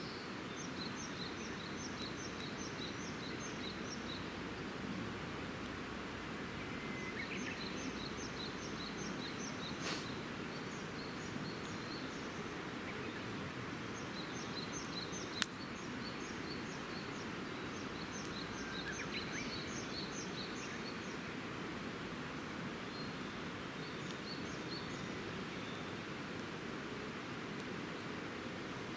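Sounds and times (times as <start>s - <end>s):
small bird singing: 0.0s - 4.4s, 6.6s - 21.3s.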